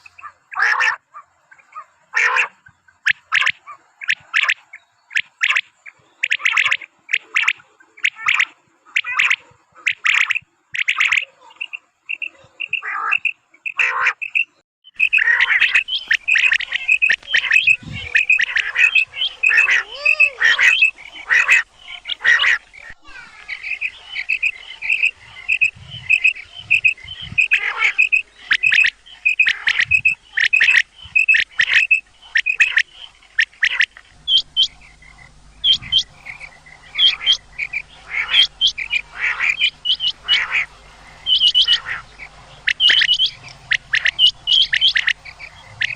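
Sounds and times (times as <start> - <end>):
gamebirds chirping harshly: 0.0 - 45.9
low background hum: 14.9 - 45.9.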